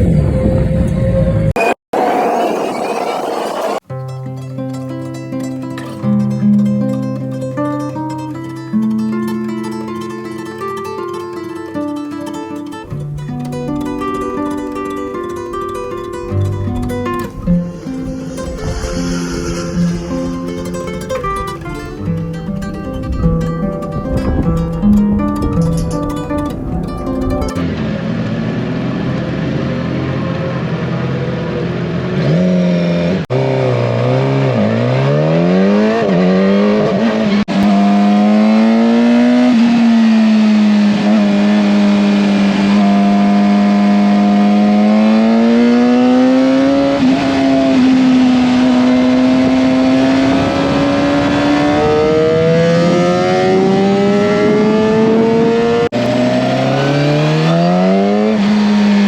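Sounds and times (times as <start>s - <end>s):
motorcycle engine revving: 27.6s - 59.0s.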